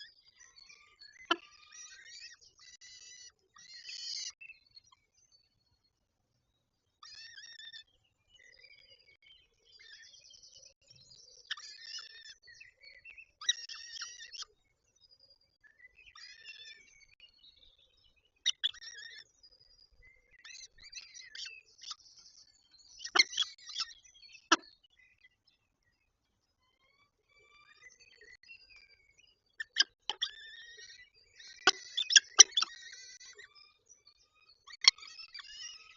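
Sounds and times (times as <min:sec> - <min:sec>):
falcons chattering calls: 0:23.1 - 0:23.4, 0:29.6 - 0:30.3, 0:31.6 - 0:32.8.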